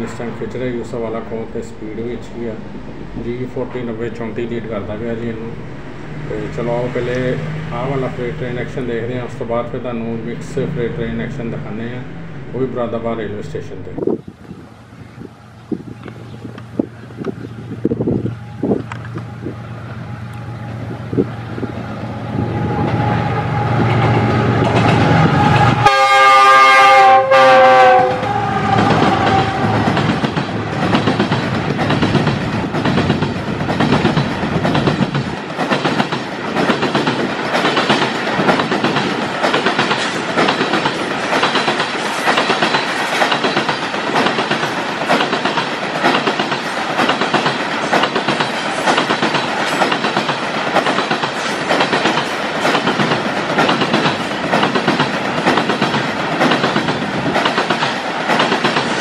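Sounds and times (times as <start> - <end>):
diesel locomotive engine: 0.0 - 59.0
locomotive horn: 18.3 - 30.2
wheels clacking over rail joints: 27.8 - 59.0.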